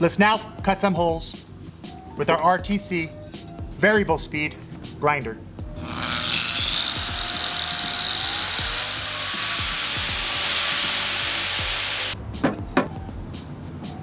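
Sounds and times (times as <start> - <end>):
background music: 0.0 - 14.0
angle grinder cutting tile: 5.8 - 12.2.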